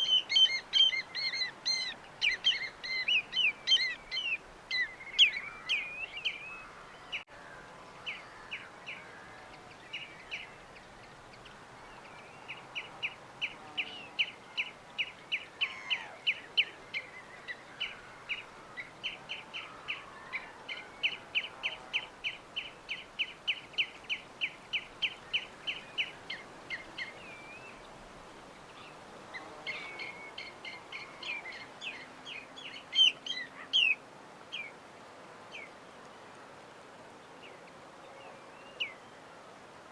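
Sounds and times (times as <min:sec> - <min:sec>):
birds chirping: 0:00.0 - 0:07.3, 0:28.6 - 0:34.7
steady soft hiss: 0:00.0 - 0:39.9.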